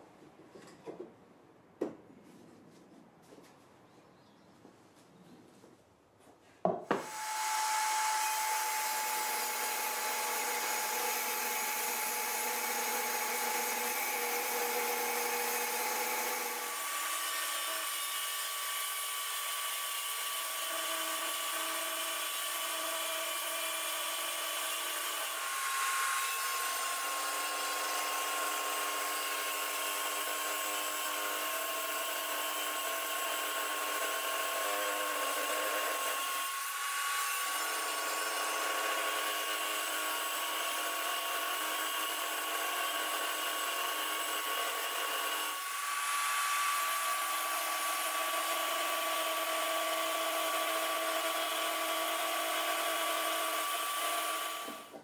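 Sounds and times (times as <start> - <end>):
table saw whining: 6.9 - 55.0.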